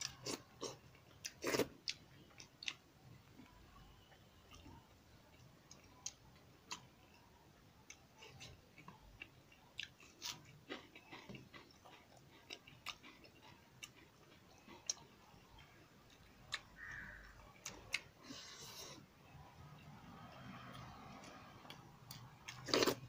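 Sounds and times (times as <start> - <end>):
person chewing and lip smacking: 0.0 - 2.8, 7.9 - 18.1.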